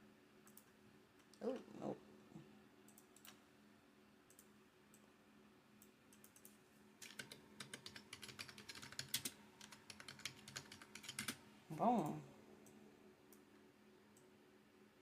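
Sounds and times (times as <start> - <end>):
faint low hum: 0.0 - 15.0
keyboard typing: 5.8 - 11.4.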